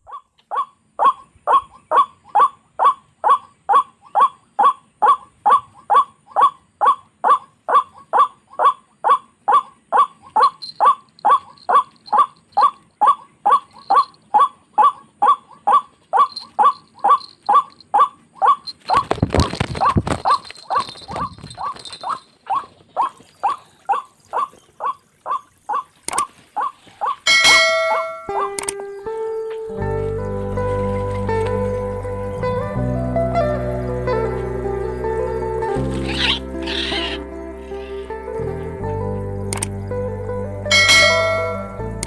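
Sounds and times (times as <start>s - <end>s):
bird repeated call: 0.0s - 19.2s, 19.8s - 29.6s, 36.0s - 38.1s
rustling and thumping: 18.7s - 23.0s.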